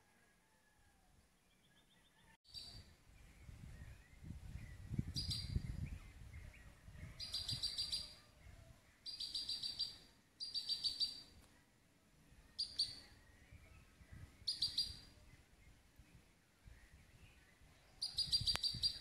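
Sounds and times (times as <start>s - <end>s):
bird singing: 1.4s - 19.0s.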